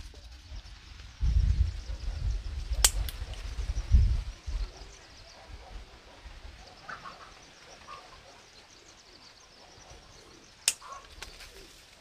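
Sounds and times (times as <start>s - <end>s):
sharp click: 2.8s - 3.5s, 10.6s - 11.4s
faint short bird calls: 4.5s - 11.8s.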